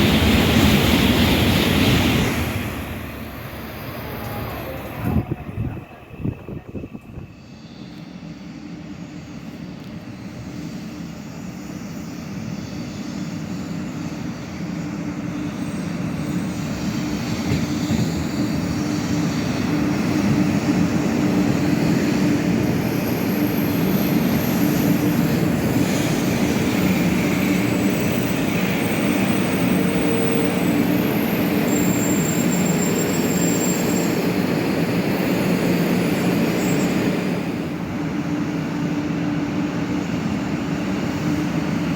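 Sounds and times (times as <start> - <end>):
train rumbling past: 0.0 - 41.9
faint high whistling tones: 3.4 - 20.0, 22.3 - 37.6.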